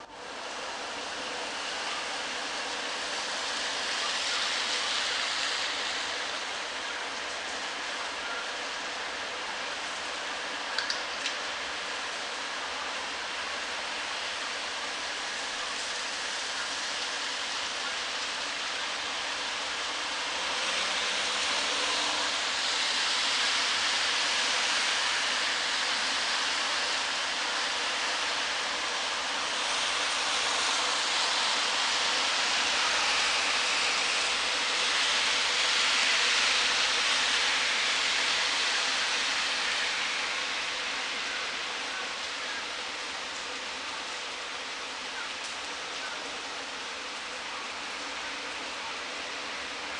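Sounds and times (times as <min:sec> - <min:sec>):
wind rustling tree foliage: 0:00.0 - 0:49.9.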